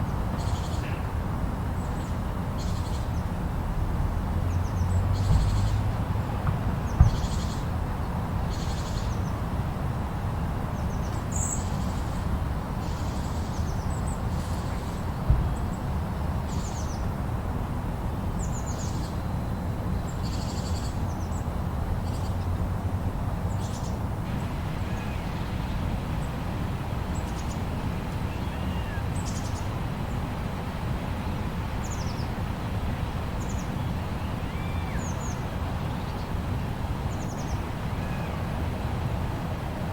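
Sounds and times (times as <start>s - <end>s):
birds chirping: 23.6s - 30.4s.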